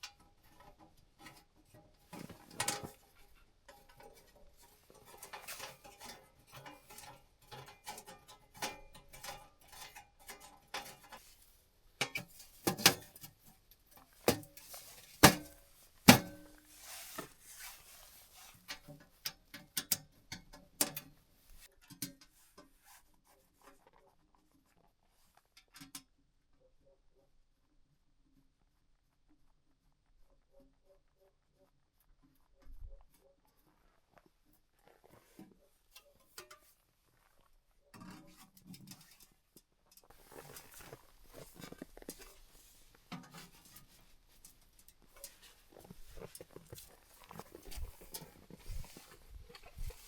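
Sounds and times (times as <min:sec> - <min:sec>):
small objects being handled: 0:38.2 - 0:50.0.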